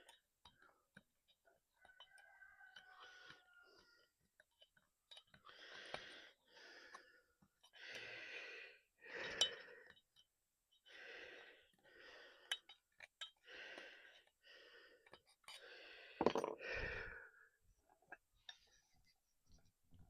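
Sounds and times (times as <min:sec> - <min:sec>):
person breathing heavily: 0:05.4 - 0:10.0, 0:10.8 - 0:12.7, 0:13.4 - 0:17.6.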